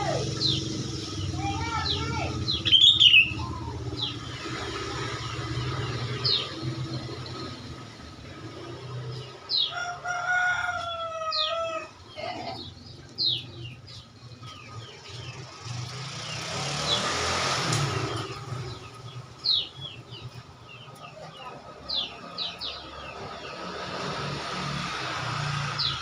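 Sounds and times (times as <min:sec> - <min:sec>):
bird chip calls: 0:00.0 - 0:04.7
rooster crowing: 0:09.6 - 0:12.2.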